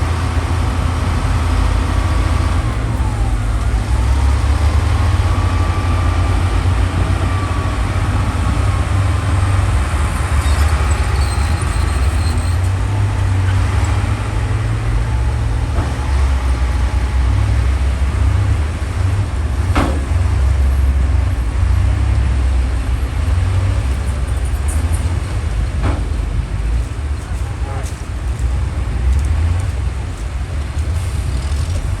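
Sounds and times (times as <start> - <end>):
diesel machinery engine rumble: 0.0 - 32.0.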